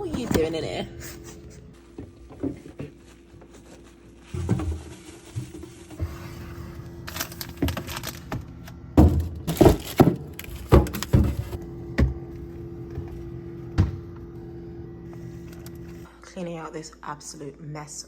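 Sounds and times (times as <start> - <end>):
steady low hum: 0.0 - 17.9
household items knocking and clunking: 1.9 - 3.6, 4.3 - 6.2, 7.1 - 14.2.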